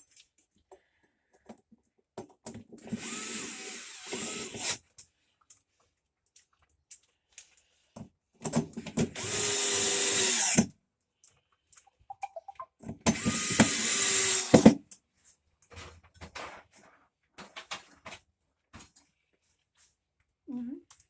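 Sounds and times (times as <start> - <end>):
power drill running: 2.9 - 4.8, 9.2 - 10.7, 13.1 - 14.8.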